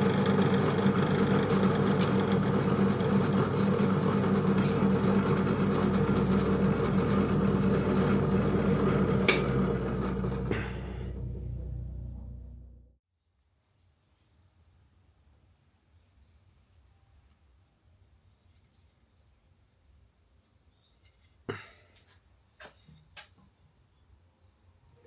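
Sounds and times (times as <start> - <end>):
drill press motor hum: 0.0 - 13.0.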